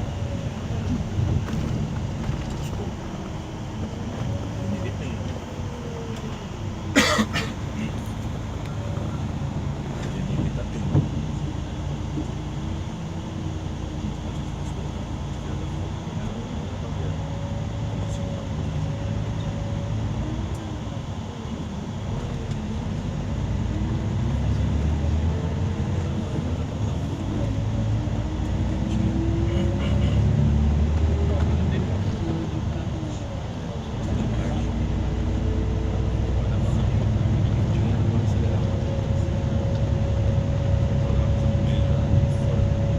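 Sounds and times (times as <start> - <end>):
bus engine humming: 0.0 - 42.9
road rumble: 0.0 - 42.9.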